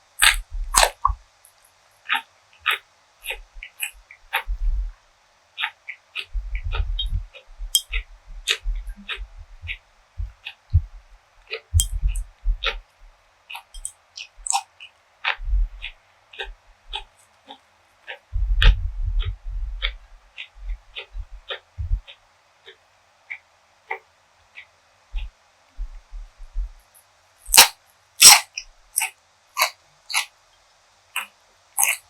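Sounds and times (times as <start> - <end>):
wet chewing clicks: 0.2 - 1.2, 2.0 - 4.6, 5.6 - 24.0, 27.5 - 30.3, 31.2 - 32.0
low bumps: 6.3 - 11.1, 18.3 - 22.0.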